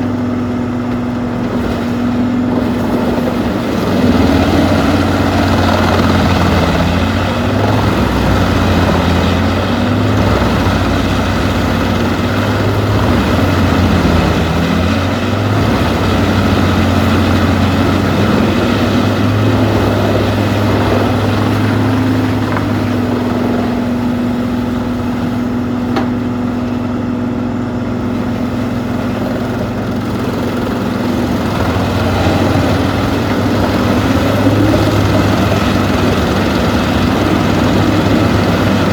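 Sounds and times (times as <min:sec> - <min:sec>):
wood chipper running: 0:00.0 - 0:38.9.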